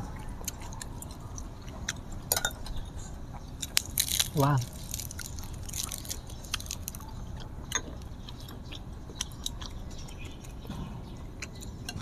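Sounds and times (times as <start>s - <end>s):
chewing with mouth clicks: 0.0s - 12.0s.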